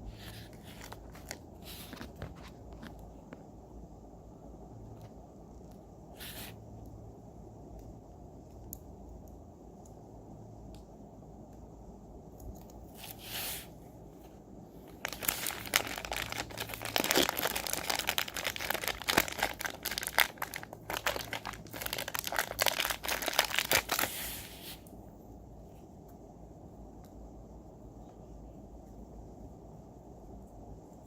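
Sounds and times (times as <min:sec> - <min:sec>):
packaging crinkling and tearing: 0:00.3 - 0:02.9, 0:14.9 - 0:24.4.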